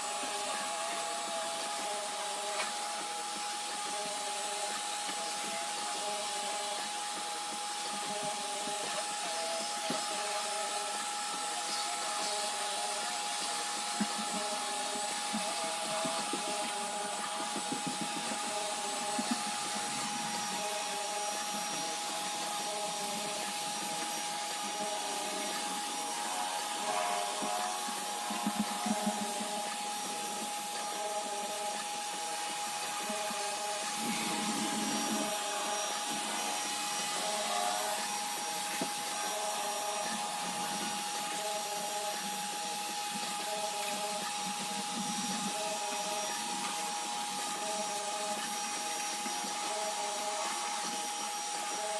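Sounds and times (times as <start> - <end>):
robot vacuum motor whine: 0.0 - 51.9
brushing and rubbing: 33.0 - 41.1.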